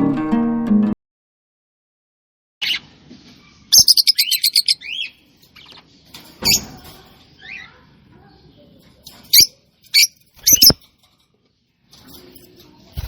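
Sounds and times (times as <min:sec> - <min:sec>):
bird chirping: 0:03.7 - 0:06.8, 0:09.2 - 0:10.8.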